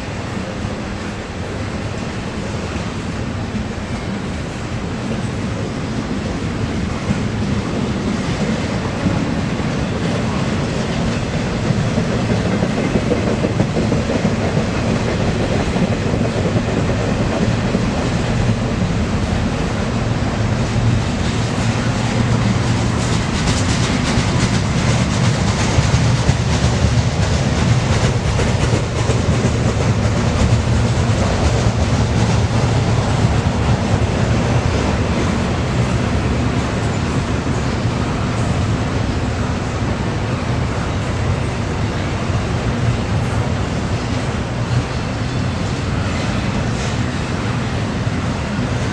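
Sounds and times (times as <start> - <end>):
freight train wheels rumbling on rail: 0.0 - 48.9
wheels clacking over rail joints: 20.8 - 39.1.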